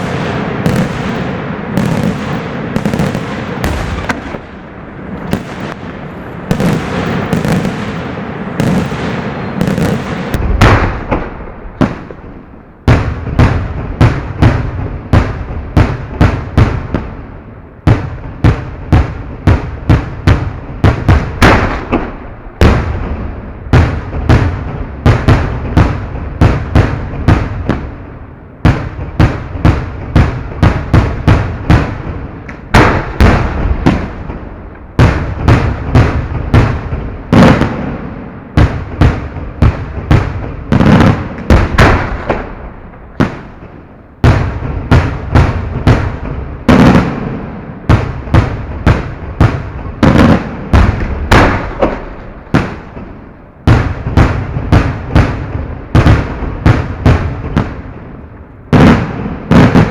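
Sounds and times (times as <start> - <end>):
fireworks shells bursting: 0.0 - 13.6.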